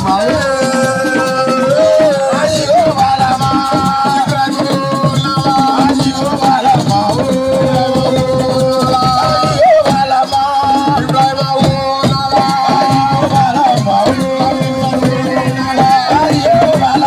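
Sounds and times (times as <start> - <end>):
fast drumming: 0.0 - 17.0.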